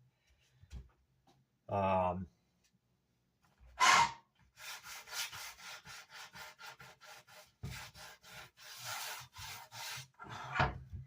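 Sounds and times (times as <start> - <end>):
sandpaper rubbing on wood: 4.6 - 10.2.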